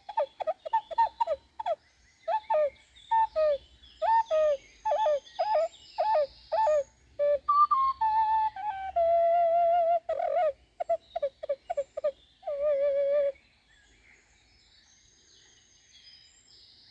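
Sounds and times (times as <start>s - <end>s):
ocarina melody: 0.0s - 13.4s.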